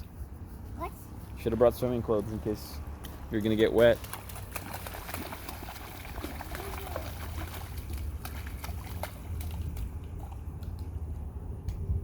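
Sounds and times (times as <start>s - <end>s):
boots splashing in puddle: 2.8s - 11.1s
steady low rumble: 7.3s - 12.0s.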